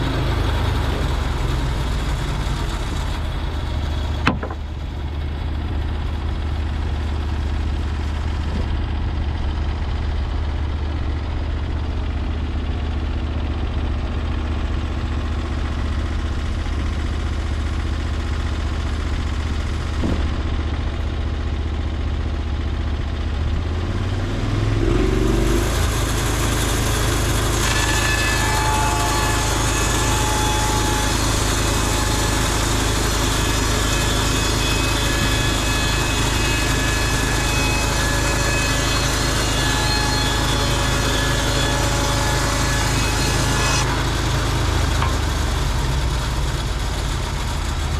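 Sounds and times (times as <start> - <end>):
gas engine idling and revving: 0.0 - 27.5, 44.0 - 47.9.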